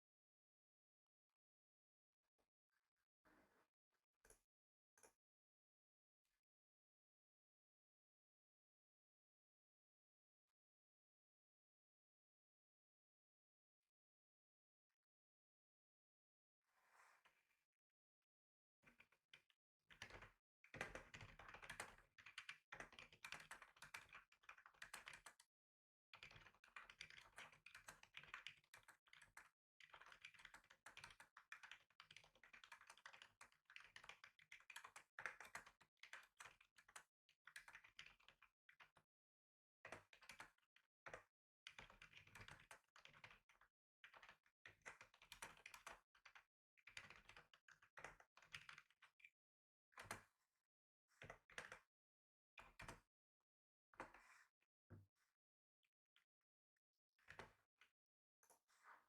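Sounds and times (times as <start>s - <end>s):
faint computer keyboard typing: 19.9s - 25.5s, 26.2s - 39.0s, 39.9s - 49.3s, 51.2s - 51.9s.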